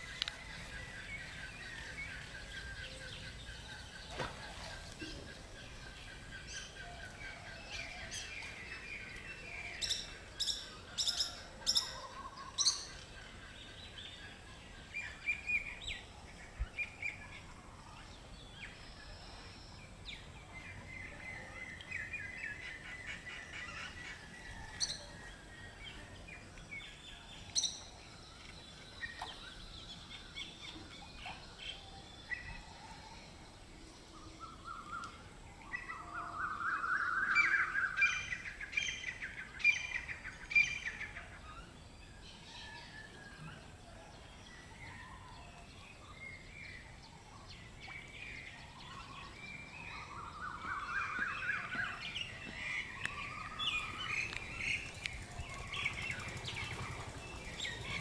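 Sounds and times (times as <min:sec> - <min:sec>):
birds chirping and calling: 0:00.0 - 0:19.4, 0:34.0 - 0:58.0.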